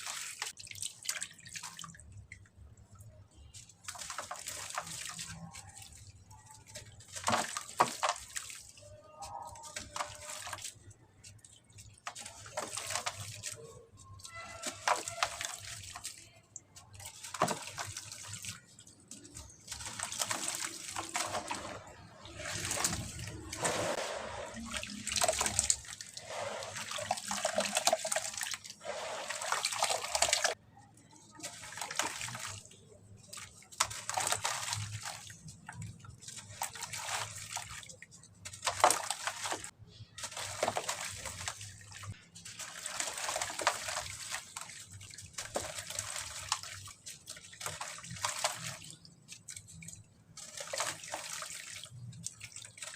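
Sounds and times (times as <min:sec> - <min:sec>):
cement crumbling into water: 0:06.5 - 0:08.5, 0:12.0 - 0:16.1, 0:16.8 - 0:30.6, 0:33.3 - 0:41.7.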